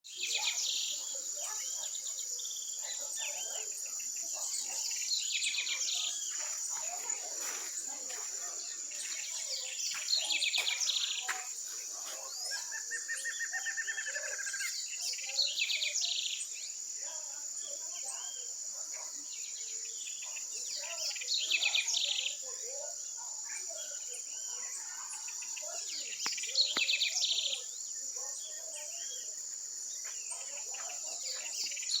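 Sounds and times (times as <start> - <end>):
loud rapid bird song: 0.0 - 32.0
small bird chirps: 23.5 - 32.0.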